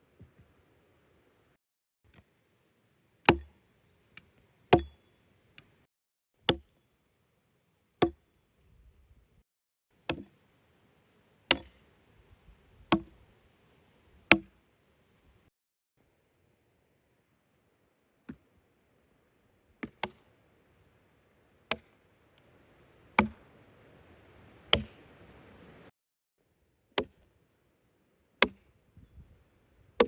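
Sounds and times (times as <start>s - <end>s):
axe chopping firewood: 3.2s - 3.6s, 4.7s - 5.0s, 6.4s - 6.7s, 8.0s - 8.2s, 10.0s - 10.4s, 11.5s - 11.9s, 12.9s - 13.2s, 14.3s - 14.5s, 19.8s - 20.3s, 21.7s - 22.0s, 23.2s - 23.5s, 24.7s - 25.0s, 26.9s - 27.3s, 28.4s - 28.8s.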